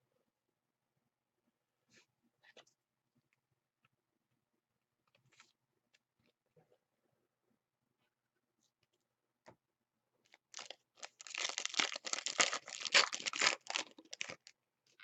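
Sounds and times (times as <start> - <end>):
wrapper being torn and crumpled: 10.4 - 14.5.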